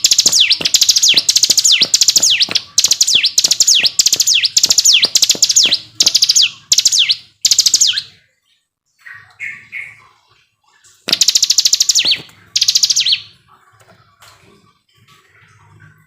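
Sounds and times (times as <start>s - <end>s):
bird trilling song: 0.0s - 10.3s, 11.0s - 13.4s
soft low bird chirps: 0.0s - 13.5s.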